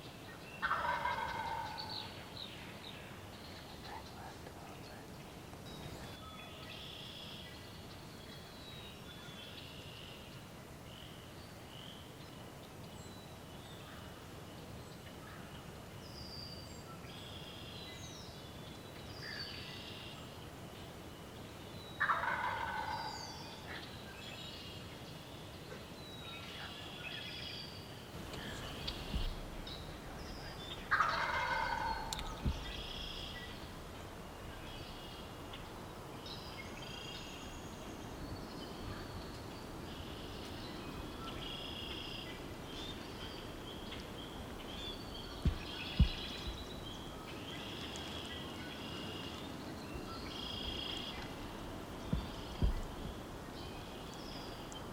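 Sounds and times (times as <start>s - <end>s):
turkey gobbling: 0.6s - 1.8s, 22.0s - 23.1s, 30.9s - 33.4s
songbirds chirping and whistling: 16.0s - 54.9s.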